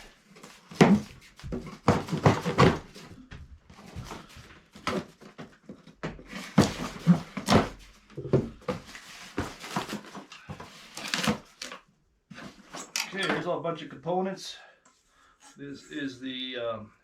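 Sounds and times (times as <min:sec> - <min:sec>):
cardboard packaging rustling: 0:00.1 - 0:03.1, 0:03.7 - 0:13.0.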